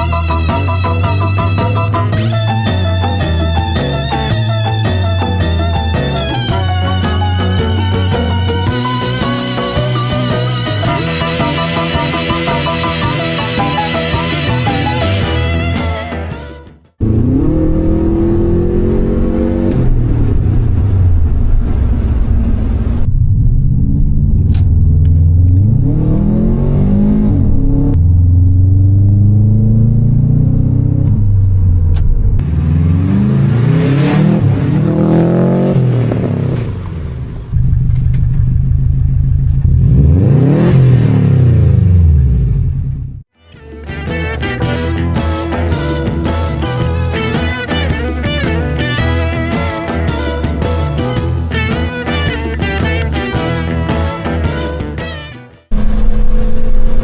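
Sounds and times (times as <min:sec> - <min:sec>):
car engine revving: 0:00.0 - 0:43.3, 0:55.6 - 0:57.0.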